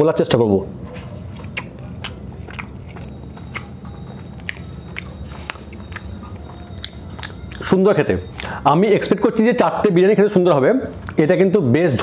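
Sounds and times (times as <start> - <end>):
man chewing food: 0.8 - 8.6.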